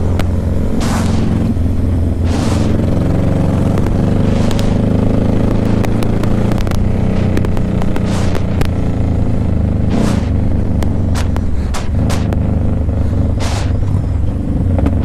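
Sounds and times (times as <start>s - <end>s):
motorcycle engine running: 0.0s - 15.0s
brief whooshes: 0.7s - 4.9s, 8.0s - 8.6s, 9.9s - 10.6s, 13.4s - 14.0s
sharp clicks: 3.7s - 9.0s, 9.9s - 12.5s.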